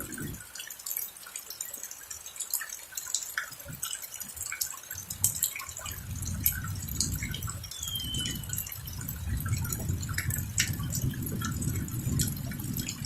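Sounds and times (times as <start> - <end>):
low rumble of thunder: 0.0 - 0.4, 5.1 - 13.0
rain dripping and splashing: 0.0 - 13.0.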